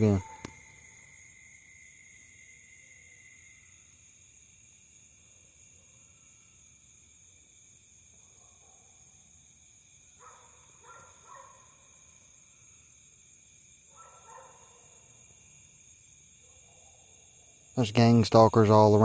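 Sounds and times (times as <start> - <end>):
dogs barking faintly: 0.0 - 0.7, 8.1 - 9.2, 10.2 - 11.8, 13.9 - 15.1
crickets chirping: 0.0 - 19.0.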